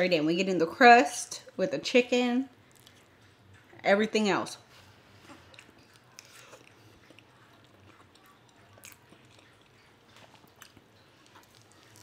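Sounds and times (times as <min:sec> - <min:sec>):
person chewing food: 0:02.6 - 0:03.8, 0:04.7 - 0:12.0.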